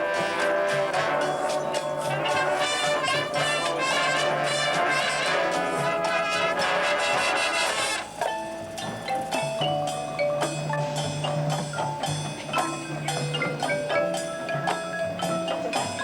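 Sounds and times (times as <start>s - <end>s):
brass horn line playing chords: 0.0s - 8.1s.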